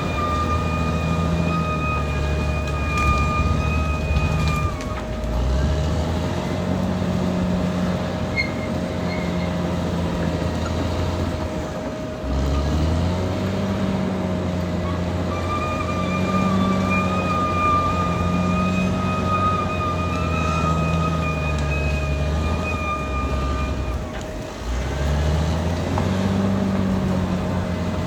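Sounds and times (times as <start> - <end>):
high whine: 0.0 - 25.2
bulldozer diesel engine working: 0.0 - 28.0.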